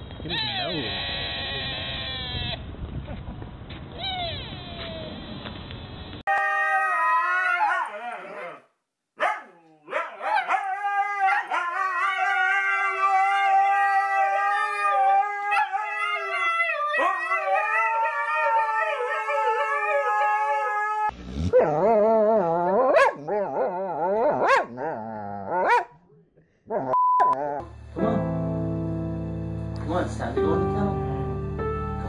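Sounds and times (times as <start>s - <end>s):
dog howling: 6.3s - 25.8s.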